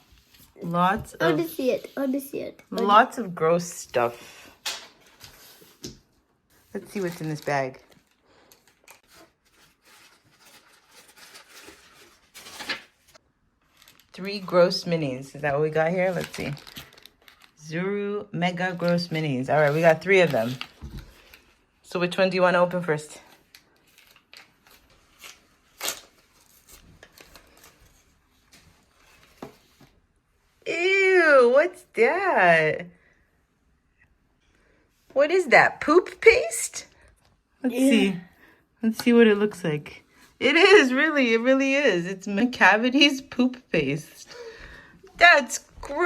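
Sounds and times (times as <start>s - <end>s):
packaging bag rustling and crinkling: 6.6s - 14.8s, 16.0s - 17.6s.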